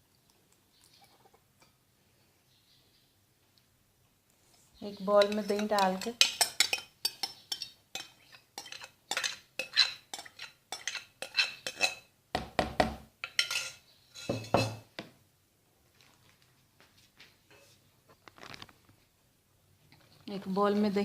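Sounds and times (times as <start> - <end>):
spoon clinking against bowl: 5.2 - 12.1, 13.2 - 14.8.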